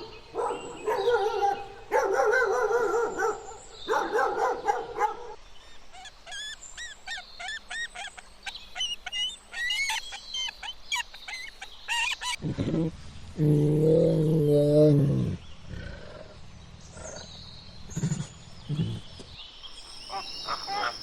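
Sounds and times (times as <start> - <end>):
dog yipping and whimpering: 6.0 - 8.2, 8.8 - 12.4.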